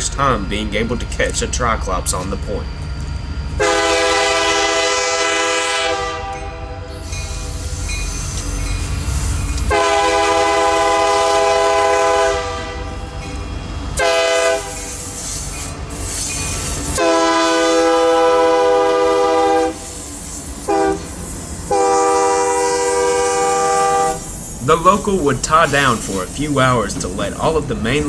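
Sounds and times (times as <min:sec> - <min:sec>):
low engine rumble: 0:00.0 - 0:19.1, 0:23.8 - 0:28.0
locomotive air horn blasts: 0:03.6 - 0:07.4, 0:09.7 - 0:13.1, 0:14.0 - 0:15.1, 0:16.9 - 0:20.0, 0:20.6 - 0:21.1, 0:21.7 - 0:24.3.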